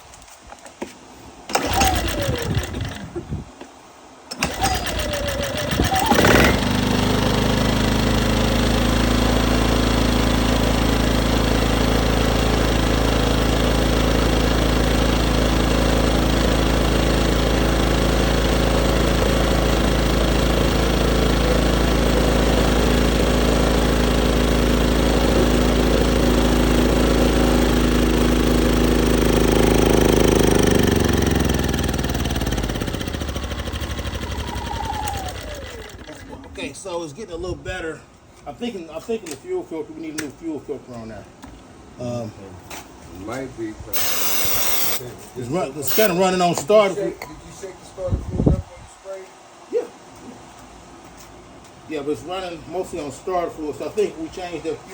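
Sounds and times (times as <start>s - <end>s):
small generator engine running: 1.5s - 3.2s, 4.3s - 36.6s, 44.0s - 45.1s, 45.8s - 46.2s.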